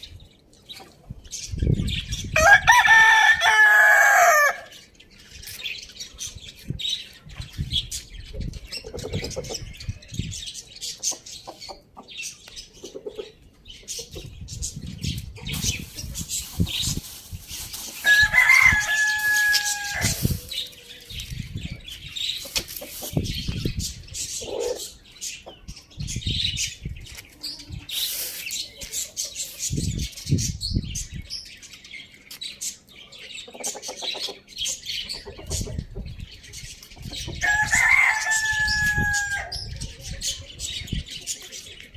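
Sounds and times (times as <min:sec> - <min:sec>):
chickens clucking: 0:05.4 - 0:30.6, 0:32.3 - 0:41.9.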